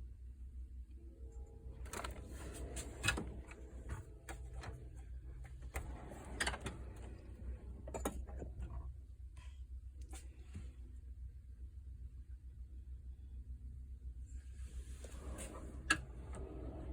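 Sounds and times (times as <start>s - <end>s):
low hum: 0.0s - 16.9s
metal drawer scrape: 1.8s - 8.7s, 14.7s - 16.9s.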